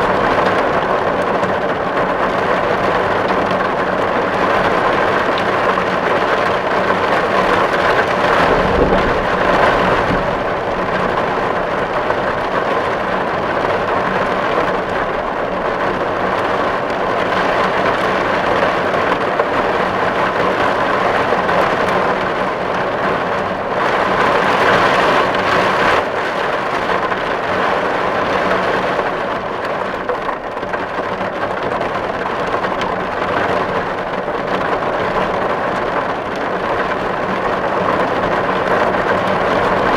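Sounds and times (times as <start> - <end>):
heavy rain on a tin roof: 0.0 - 39.9
low rumble: 7.4 - 13.8.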